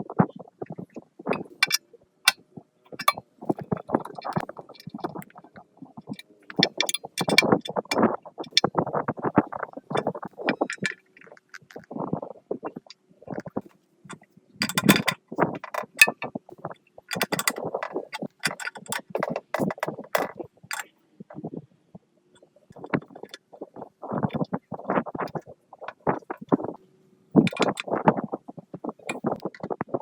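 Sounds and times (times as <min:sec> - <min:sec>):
metal parts knocked and scraped: 0:01.3 - 0:01.8, 0:02.9 - 0:05.3, 0:06.1 - 0:08.6, 0:10.0 - 0:11.0, 0:14.6 - 0:16.2, 0:17.1 - 0:20.9, 0:27.4 - 0:27.9.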